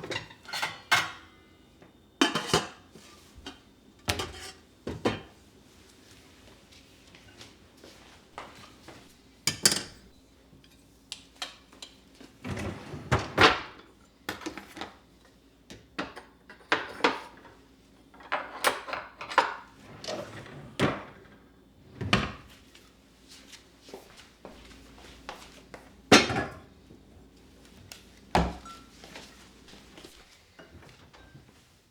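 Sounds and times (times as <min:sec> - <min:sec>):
dishes knocking and clinking: 0:03.5 - 0:05.3, 0:09.5 - 0:10.8, 0:26.1 - 0:26.7, 0:28.4 - 0:28.9.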